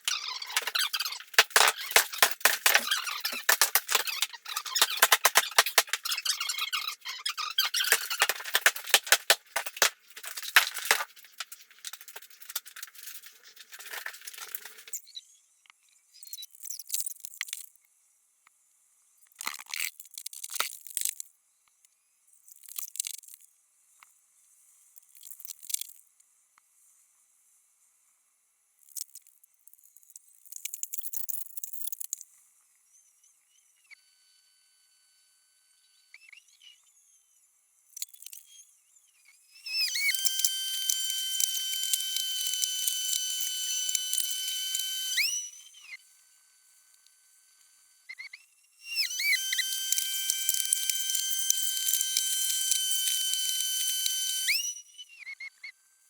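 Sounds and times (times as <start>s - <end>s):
brittle pieces clattering: 0.0s - 6.3s, 7.6s - 15.0s
crackling debris being broken up: 0.1s - 6.2s, 7.6s - 15.0s.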